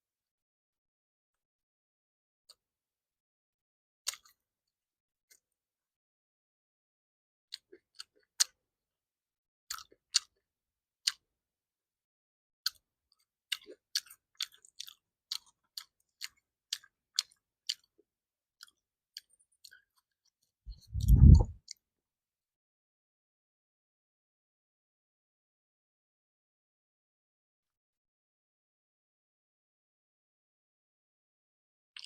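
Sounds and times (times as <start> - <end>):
chewing mouth clicks and smacks: 4.1 - 4.4, 9.7 - 10.4, 11.0 - 11.2, 12.7 - 18.0.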